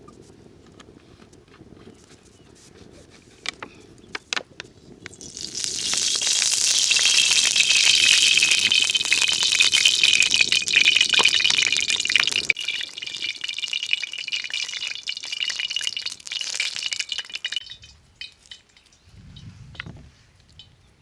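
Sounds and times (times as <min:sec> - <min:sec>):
food sizzling in hot fat: 0:05.1 - 0:17.6.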